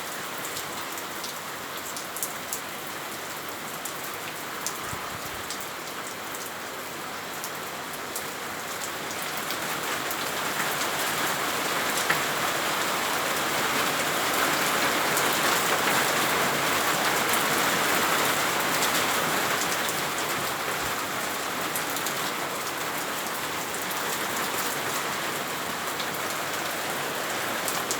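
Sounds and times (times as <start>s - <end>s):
heavy rain hissing: 14.1s - 27.9s.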